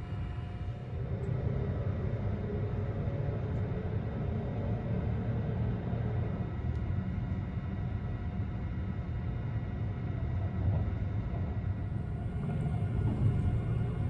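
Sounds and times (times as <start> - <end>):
electric train running: 10.4 - 14.0.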